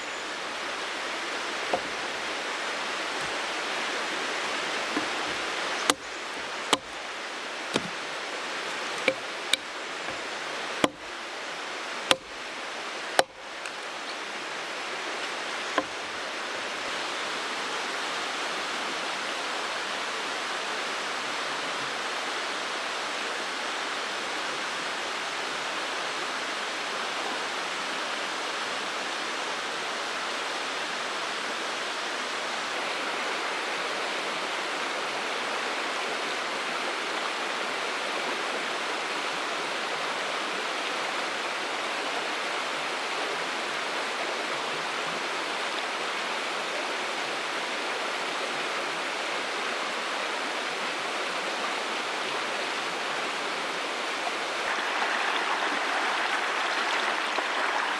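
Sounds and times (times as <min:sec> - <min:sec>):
mountain stream rushing: 0:00.0 - 0:57.9
sharp clicks or knocks: 0:09.0 - 0:10.2.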